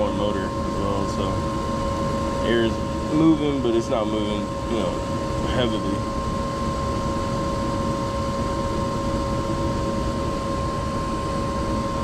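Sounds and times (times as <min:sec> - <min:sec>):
inducer motor hum and whine: 0:00.0 - 0:12.0
low rumble of burners and blower: 0:00.0 - 0:12.0.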